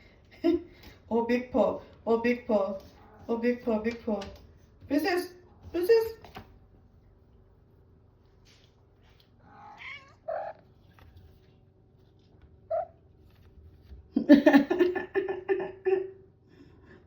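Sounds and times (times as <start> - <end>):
cat meowing: 9.4 - 10.6.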